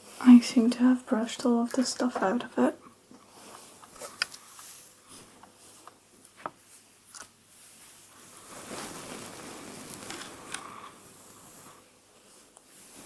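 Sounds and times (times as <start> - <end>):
hair being rustled: 3.3 - 5.9, 6.6 - 13.0.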